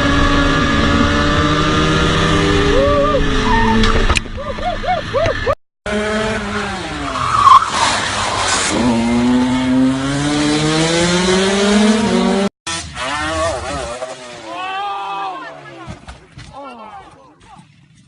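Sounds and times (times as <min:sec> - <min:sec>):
motorcycle engine accelerating: 0:00.0 - 0:04.1, 0:05.9 - 0:07.3, 0:08.6 - 0:14.6
tyre squeal and skidding: 0:03.3 - 0:04.1, 0:07.0 - 0:08.9.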